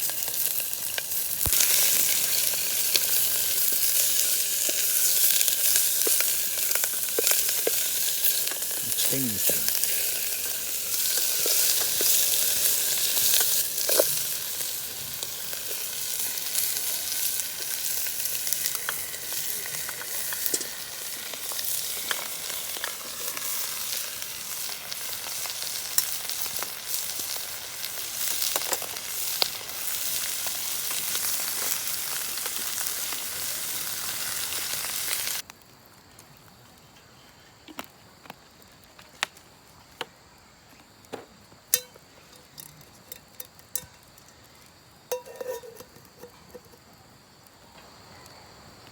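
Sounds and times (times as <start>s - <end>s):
food sizzling in a pan: 0.0s - 35.4s, 45.1s - 46.8s.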